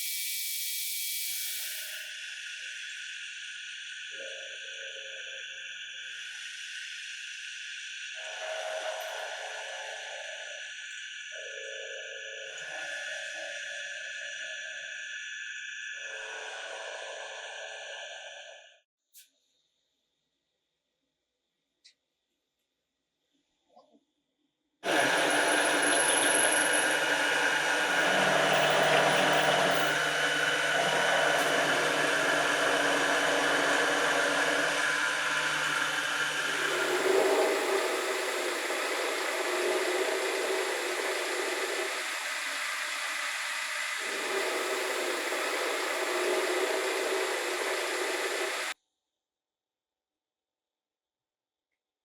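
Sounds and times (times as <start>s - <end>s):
electric power tool running: 1.1s - 2.1s, 24.8s - 48.8s.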